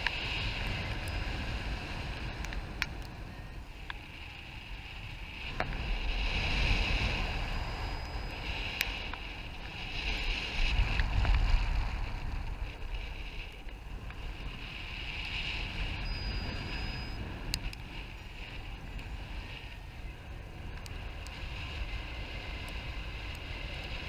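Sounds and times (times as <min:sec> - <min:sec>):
wind gusts on microphone: 0:00.0 - 0:24.0
faint clicks: 0:17.4 - 0:17.9.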